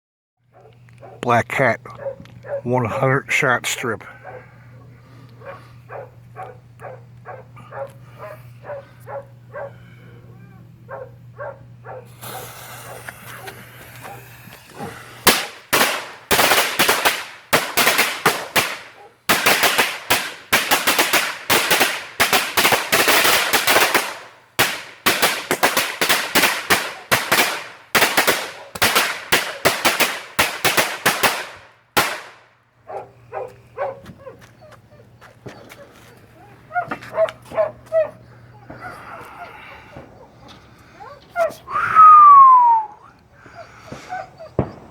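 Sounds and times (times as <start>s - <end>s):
fuse hissing: 12.0s - 16.8s
firecrackers cracking: 12.0s - 32.5s, 43.8s - 44.9s.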